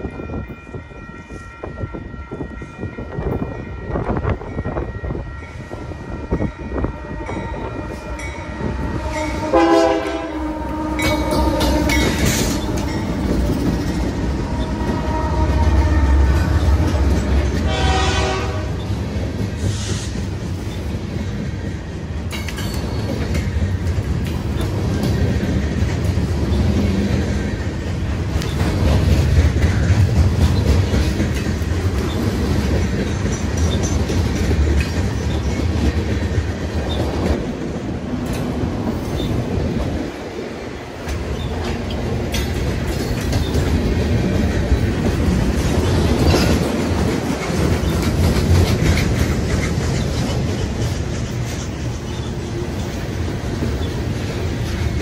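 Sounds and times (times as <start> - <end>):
diesel locomotives rumbling: 0.0 - 55.0
train horn blasts: 3.6 - 18.9
wheels clattering over rails: 18.8 - 40.1, 41.0 - 55.0.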